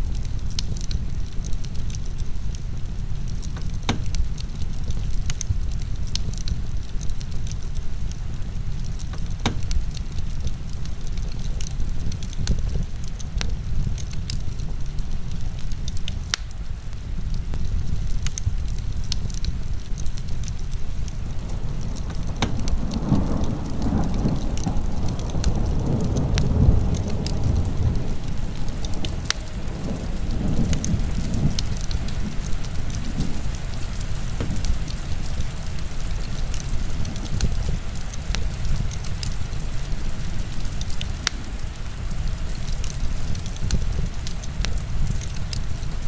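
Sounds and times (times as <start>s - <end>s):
heavy rain falling: 0.0s - 46.0s
wood fire crackling and popping: 0.0s - 46.0s
low rumble: 17.0s - 38.9s.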